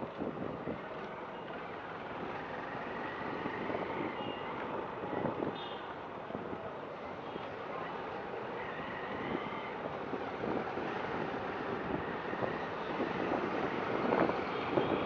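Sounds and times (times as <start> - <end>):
wind on microphone: 0.0 - 1.0, 3.1 - 5.6, 9.0 - 15.0
street traffic: 0.0 - 15.0.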